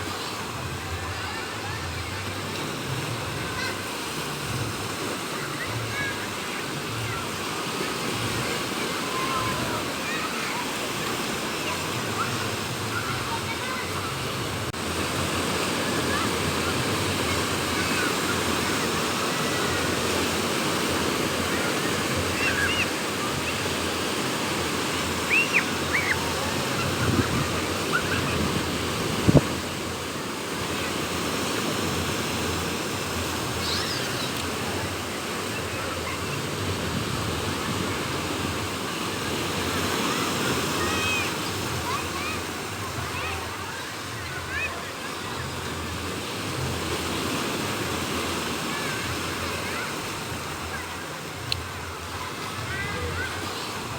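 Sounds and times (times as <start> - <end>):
sea waves breaking on beach: 0.0 - 53.9
wind: 0.0 - 53.9
high chirps: 25.3 - 26.2.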